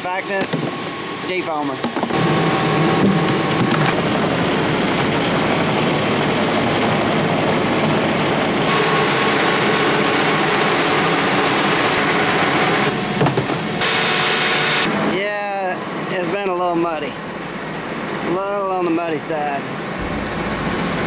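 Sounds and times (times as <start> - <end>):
rattly farm machine engine: 19.4 - 21.0.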